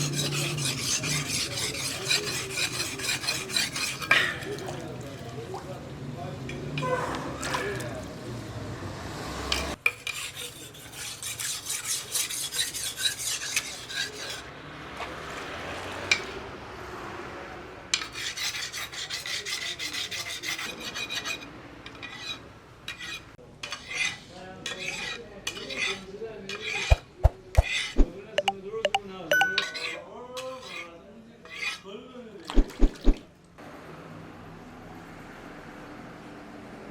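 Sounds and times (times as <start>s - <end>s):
sickle blade being sharpened: 0.0s - 4.3s, 9.9s - 14.4s, 18.0s - 28.5s, 29.3s - 30.9s, 31.5s - 31.8s.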